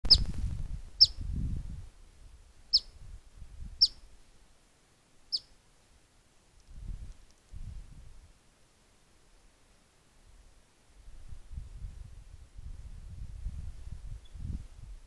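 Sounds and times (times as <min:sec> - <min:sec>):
bird sharp chip calls: 0:00.0 - 0:00.4.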